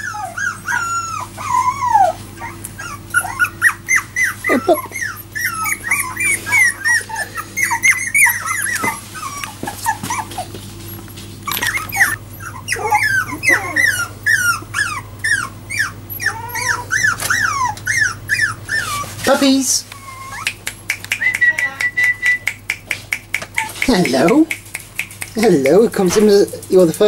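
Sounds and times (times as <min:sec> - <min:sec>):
puppies whining and squeaking: 0:00.0 - 0:27.0.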